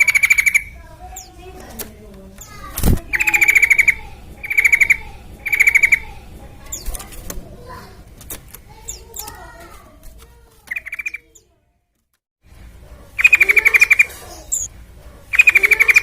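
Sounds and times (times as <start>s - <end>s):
soft bird chirps: 0.0s - 1.7s, 2.3s - 7.2s, 8.7s - 9.5s, 10.6s - 11.6s, 13.2s - 14.7s, 15.3s - 16.0s
bird rattling trills: 0.0s - 9.7s, 10.6s - 11.3s, 13.2s - 16.0s.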